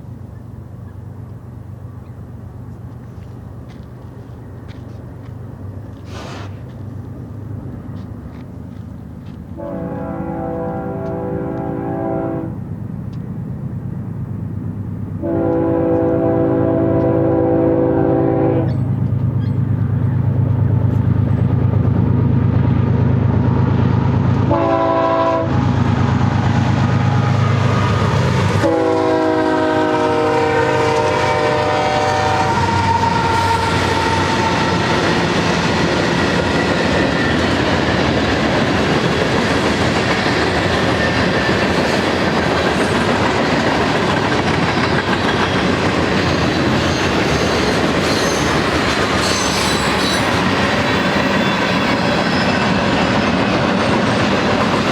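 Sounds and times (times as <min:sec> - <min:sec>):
diesel locomotive drone: 0:00.0 - 0:54.9
train air horn: 0:09.6 - 0:12.6, 0:15.2 - 0:18.8, 0:24.5 - 0:35.2.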